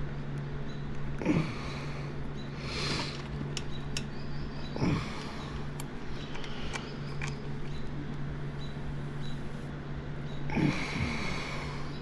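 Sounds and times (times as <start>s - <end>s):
steady low hum: 0.0s - 12.0s
grunt-like voice: 1.2s - 1.9s, 4.8s - 5.4s, 10.5s - 11.8s.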